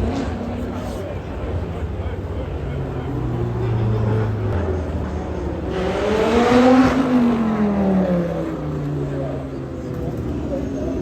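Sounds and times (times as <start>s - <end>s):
sports car passing at speed: 2.8s - 9.2s.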